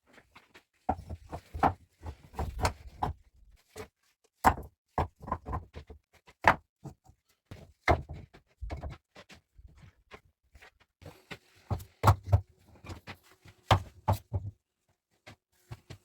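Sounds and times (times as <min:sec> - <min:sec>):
knocks and thumps of hard objects: 0:00.9 - 0:03.2, 0:04.4 - 0:09.0, 0:11.7 - 0:13.0, 0:13.6 - 0:14.6.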